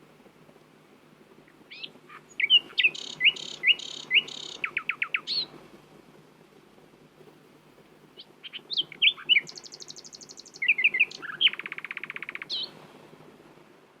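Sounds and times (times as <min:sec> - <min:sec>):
nightingale singing: 0:01.5 - 0:05.6, 0:08.2 - 0:12.8.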